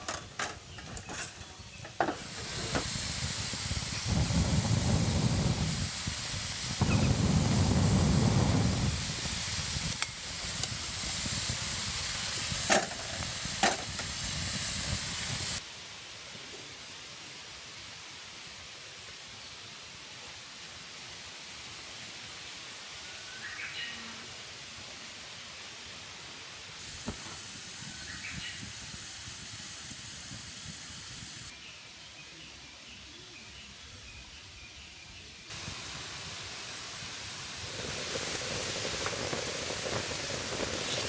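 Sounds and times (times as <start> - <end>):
steady background hiss: 0.0 - 41.0.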